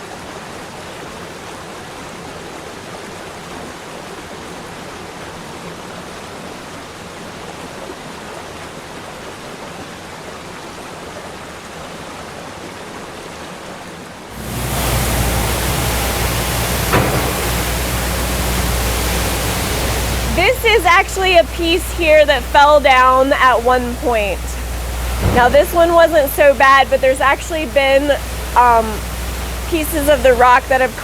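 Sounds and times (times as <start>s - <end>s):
waterfall rushing: 14.3s - 31.0s.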